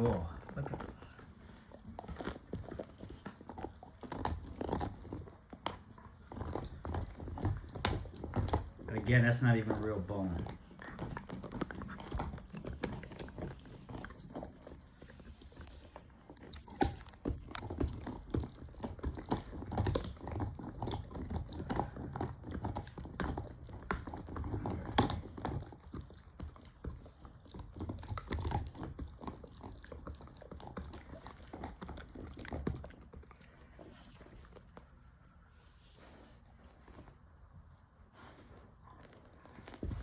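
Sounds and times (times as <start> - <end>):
dog gnawing a chew bone: 0.0 - 40.0.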